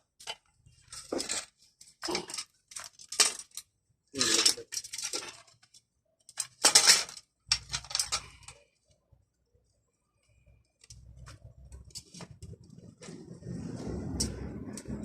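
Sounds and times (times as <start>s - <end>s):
metal parts and tools clinking: 0.0s - 8.9s
low rumble: 12.8s - 15.0s.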